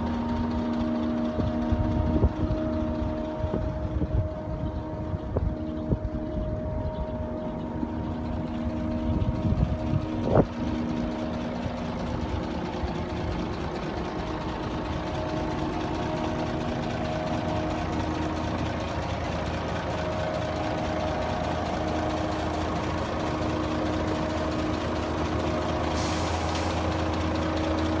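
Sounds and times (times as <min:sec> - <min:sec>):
diesel truck engine idling: 0:00.0 - 0:28.0.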